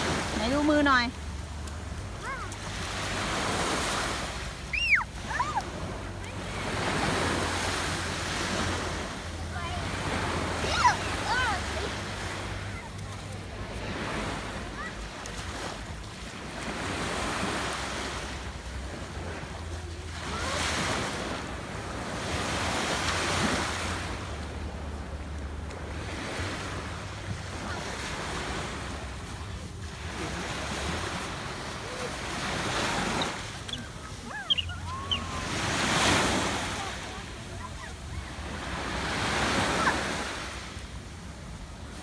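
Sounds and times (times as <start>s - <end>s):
sea waves on beach: 0.0s - 42.0s
faint high calls: 4.7s - 5.6s, 32.5s - 37.0s.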